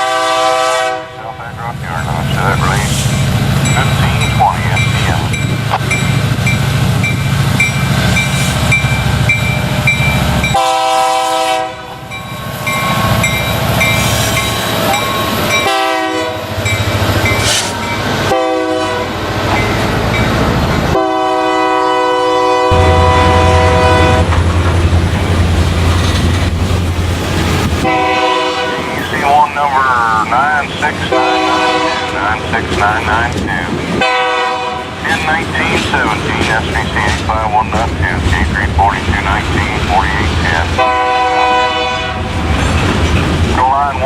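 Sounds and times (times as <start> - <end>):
locomotive horn: 0.0 - 2.2, 10.5 - 12.1, 14.0 - 16.6, 17.4 - 19.3, 20.9 - 25.0, 27.8 - 33.4, 34.0 - 35.4, 40.7 - 42.3
low rumble of moving train: 0.0 - 44.0.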